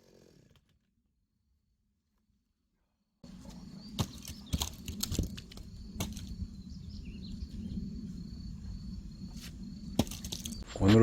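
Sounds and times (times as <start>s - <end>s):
low outdoor hum: 3.2s - 11.0s.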